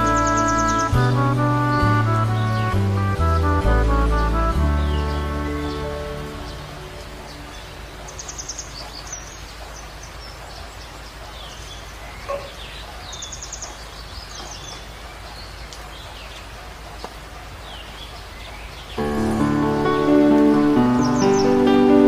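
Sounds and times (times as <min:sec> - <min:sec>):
low hum and hiss: 0:00.0 - 0:12.2
birds calling with whistled notes: 0:00.0 - 0:19.4, 0:20.0 - 0:22.0.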